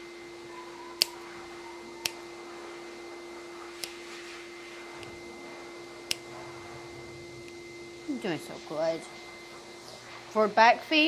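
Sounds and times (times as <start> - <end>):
nail clippers snipping: 1.0 - 1.3, 2.0 - 2.2.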